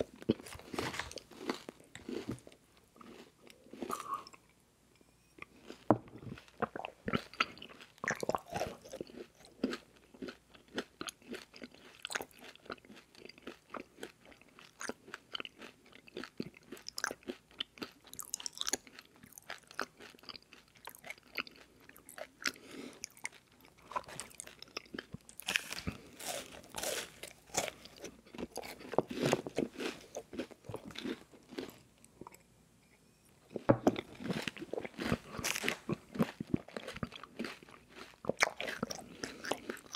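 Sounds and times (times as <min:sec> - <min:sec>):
chewing crispy cereal bars: 0:00.0 - 0:04.0, 0:05.6 - 0:32.4, 0:34.0 - 0:39.9
wet mouth sounds: 0:03.8 - 0:04.4.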